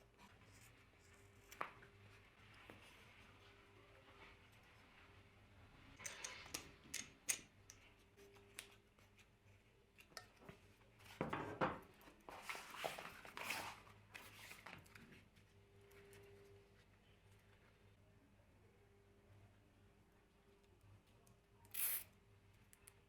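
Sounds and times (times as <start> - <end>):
faint steady hum: 14.0 - 23.0.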